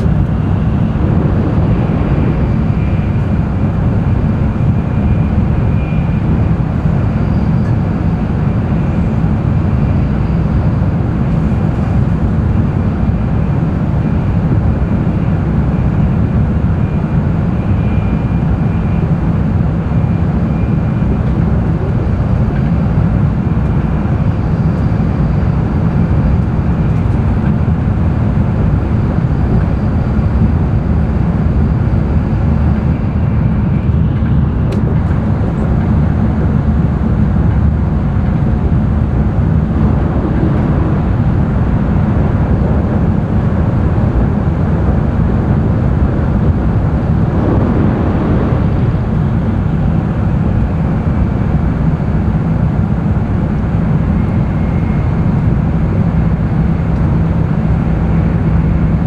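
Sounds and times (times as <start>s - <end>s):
faint high whine: 0.0s - 10.8s
train cabin low rumble: 0.0s - 59.0s.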